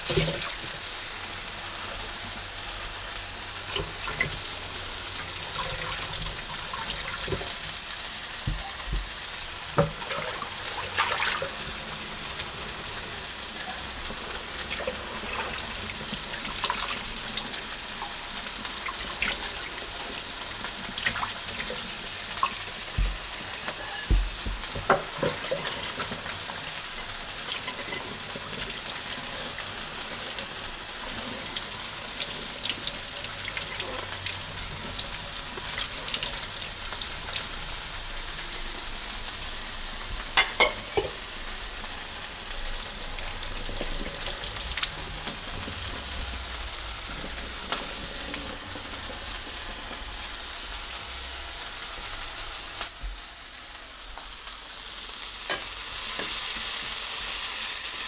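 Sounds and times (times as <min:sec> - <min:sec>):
food sizzling in frying pan: 0:00.0 - 0:58.0
utensil scraping the pan: 0:22.5 - 0:26.5.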